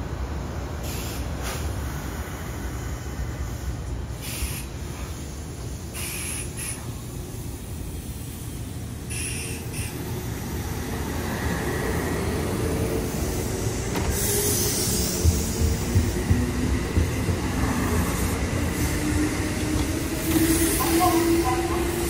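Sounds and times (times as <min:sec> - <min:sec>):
electric train rumbling past: 0:00.0 - 0:22.0
short hisses: 0:04.2 - 0:05.3, 0:06.0 - 0:06.9.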